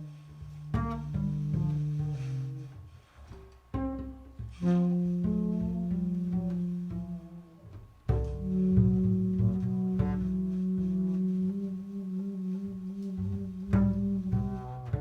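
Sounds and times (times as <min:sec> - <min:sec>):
upright bass jazz ballad: 0:00.0 - 0:15.0.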